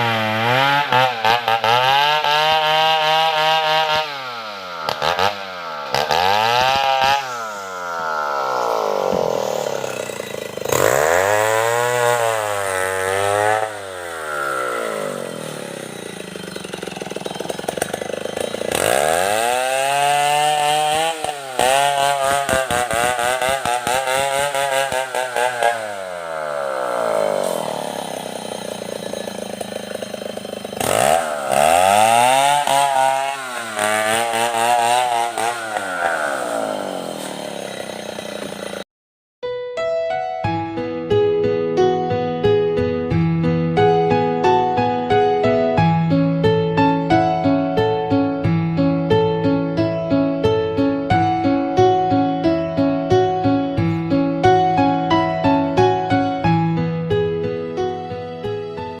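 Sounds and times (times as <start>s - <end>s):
chainsaw revving: 0.0s - 38.8s.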